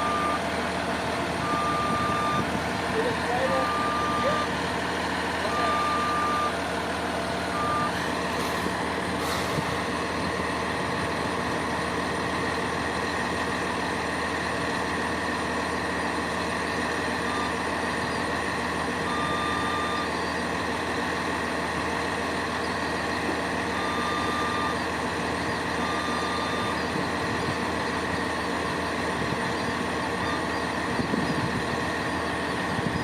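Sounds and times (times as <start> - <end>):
truck engine running: 0.0 - 33.0
high warning beeper: 1.4 - 4.6, 5.5 - 6.6.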